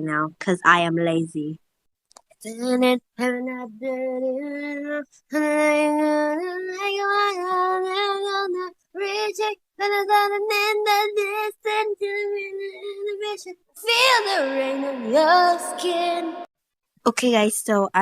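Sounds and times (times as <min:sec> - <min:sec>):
woman singing unaccompanied: 0:02.4 - 0:16.5.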